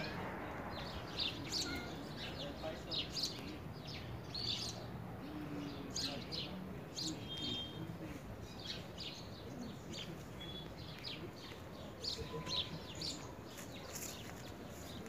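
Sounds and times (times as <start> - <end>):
low steady outdoor background: 0.0 - 15.0
small birds chirping: 0.0 - 15.0.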